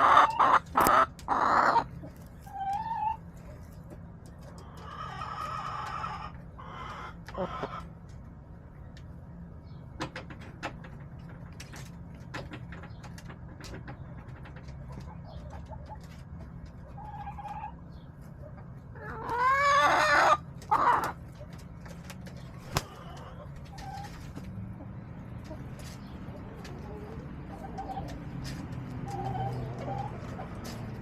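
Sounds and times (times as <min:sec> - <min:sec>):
chickens clucking: 0:00.0 - 0:31.0
chickens pecking and scratching: 0:00.0 - 0:31.0
chicken crowing: 0:19.0 - 0:21.1.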